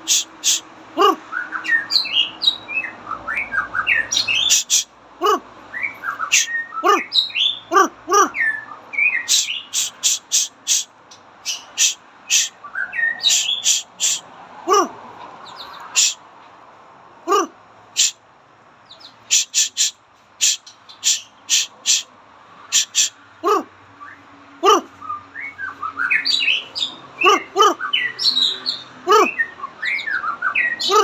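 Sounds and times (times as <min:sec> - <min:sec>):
bird squawks: 0:00.0 - 0:02.6, 0:03.3 - 0:14.9, 0:15.6 - 0:16.2, 0:17.3 - 0:18.2, 0:18.9 - 0:22.1, 0:22.7 - 0:31.0
bird chirping and whistling: 0:01.3 - 0:04.9, 0:05.8 - 0:07.7, 0:08.3 - 0:10.8, 0:11.5 - 0:14.2, 0:25.0 - 0:31.0.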